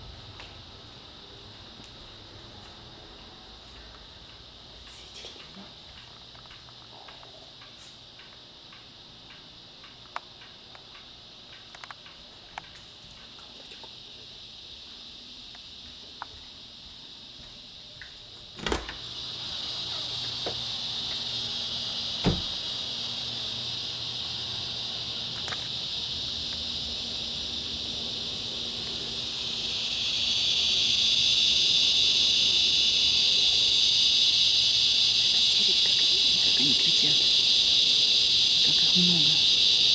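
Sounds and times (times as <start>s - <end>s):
cicadas droning: 0.0s - 39.9s
thump: 22.2s - 22.6s.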